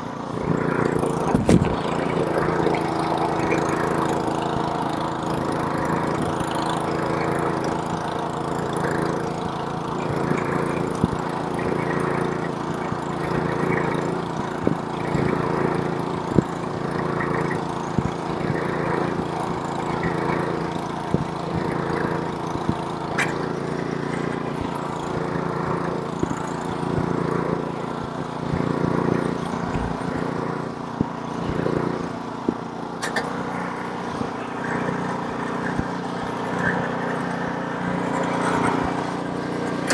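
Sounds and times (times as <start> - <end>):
snowblower engine running: 0.0 - 39.9
short knocks and clicks: 29.5 - 30.4.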